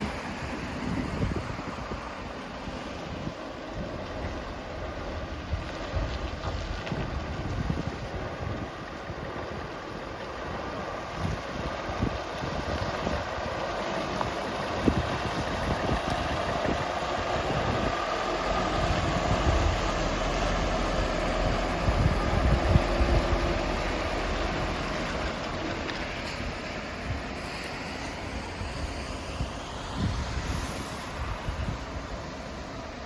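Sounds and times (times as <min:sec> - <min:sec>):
wind buffeting microphone: 0:00.0 - 0:33.0
truck diesel engine idling: 0:08.0 - 0:27.3.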